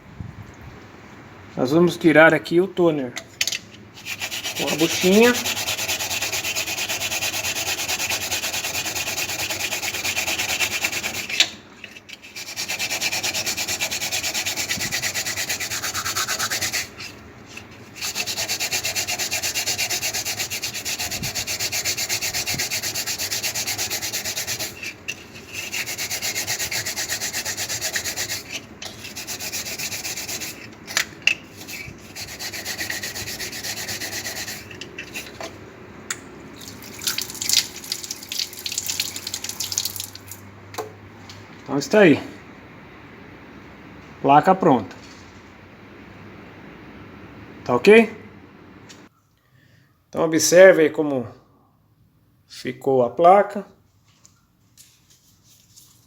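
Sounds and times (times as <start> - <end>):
scouring pad scrubbing circuit board: 4.0 - 11.4, 12.2 - 30.7, 31.5 - 35.4.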